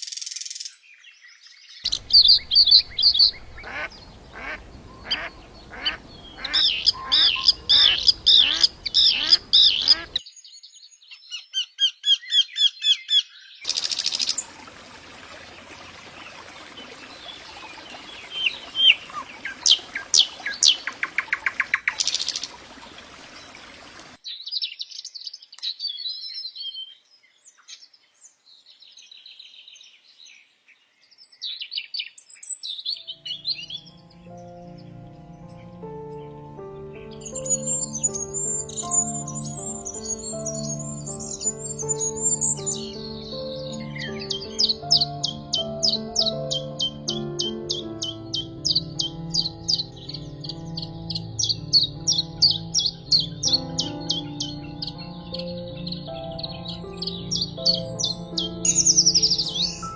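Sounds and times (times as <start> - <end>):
songbirds singing: 0.0 - 59.9
background hiss: 1.9 - 10.2.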